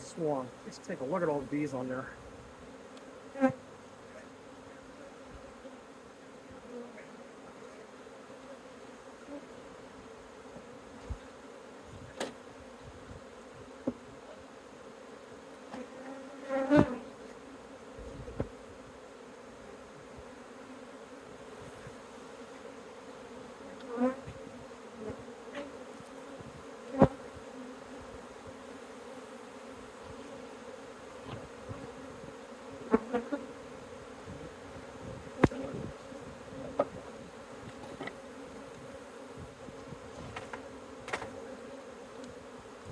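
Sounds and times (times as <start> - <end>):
bee swarm buzzing: 0.0 - 42.9
single bees flying close: 0.0 - 42.9.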